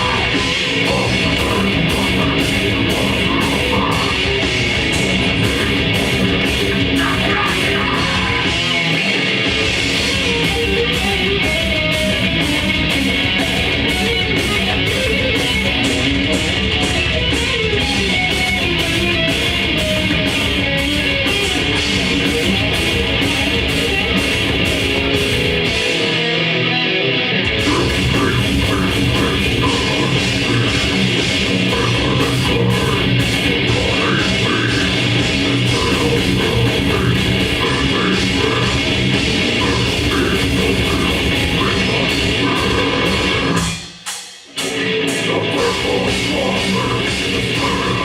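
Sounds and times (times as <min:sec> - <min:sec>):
bass guitar: 0:00.0 - 0:48.0
distorted electric guitars: 0:00.0 - 0:48.0
drums: 0:00.0 - 0:48.0.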